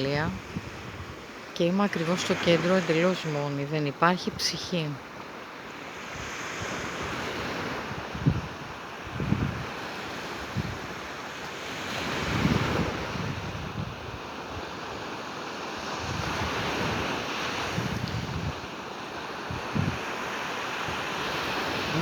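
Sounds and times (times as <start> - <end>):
wind buffeting microphone: 0.0 - 1.4, 6.1 - 11.1, 12.0 - 14.8, 15.8 - 18.7, 19.4 - 20.1
waves washing onto beach: 0.0 - 22.0.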